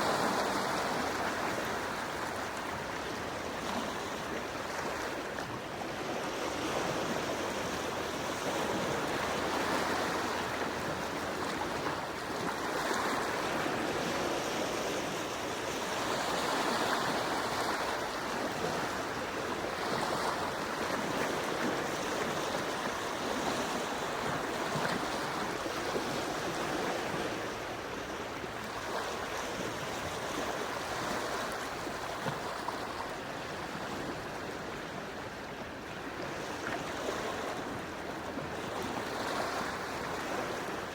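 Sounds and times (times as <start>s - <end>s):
sea waves washing onto shore: 0.0s - 40.9s.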